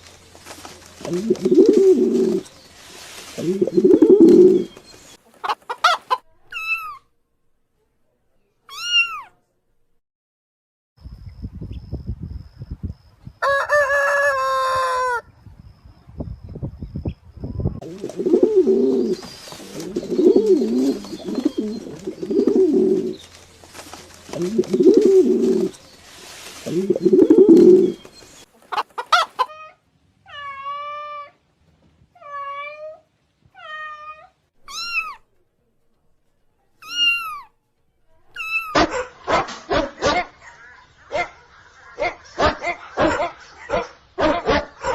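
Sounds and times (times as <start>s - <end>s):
pigeons cooing: 1.0s - 2.5s, 3.4s - 4.8s, 17.8s - 25.9s, 26.5s - 28.2s
kitten meowing: 8.7s - 9.3s, 33.6s - 35.2s
dog barking: 38.7s - 44.9s.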